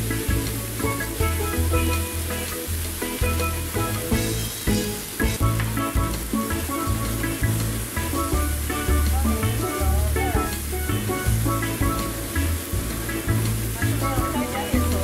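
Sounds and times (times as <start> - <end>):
background music with bass beat: 0.0 - 15.0
food sizzling in a wok: 0.0 - 15.0.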